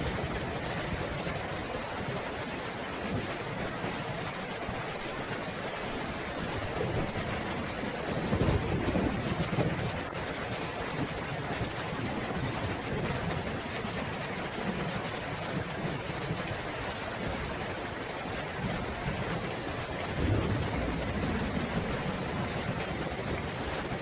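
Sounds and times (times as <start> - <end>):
heavy rain falling: 0.0 - 24.0
low rolling thunder: 8.1 - 10.0, 20.0 - 24.0.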